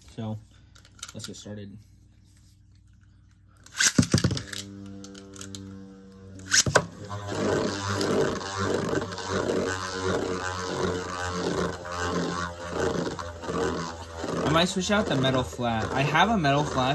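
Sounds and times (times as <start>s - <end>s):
tops whirring and grinding: 3.6s - 16.9s
spinning tops launch clicks: 3.7s - 5.8s, 6.4s - 16.9s
spinning tops humming: 3.7s - 16.9s.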